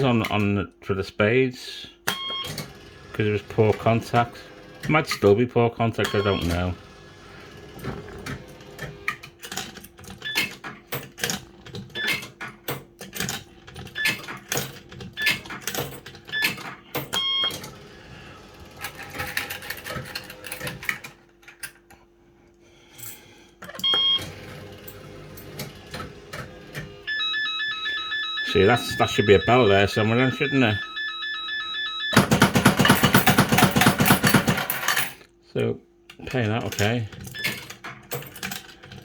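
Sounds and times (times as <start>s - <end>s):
electrical hum: 0.0s - 39.0s
short electronic beeps: 27.1s - 32.2s.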